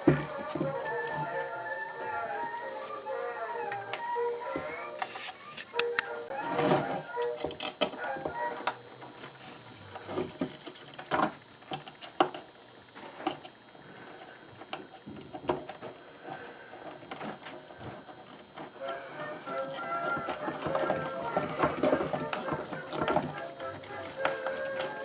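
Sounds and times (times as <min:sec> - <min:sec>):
wooden grinder parts clicking: 0:16.8 - 0:25.0.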